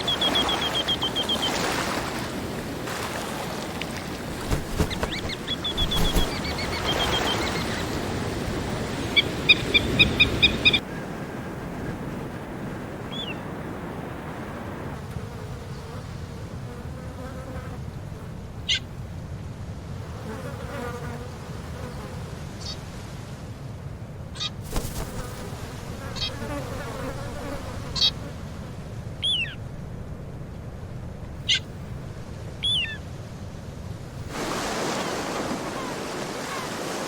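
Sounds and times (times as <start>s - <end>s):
bird call notes: 0.0s - 1.7s, 4.8s - 8.0s, 9.0s - 10.8s
insects buzzing: 0.0s - 10.8s, 24.5s - 29.4s.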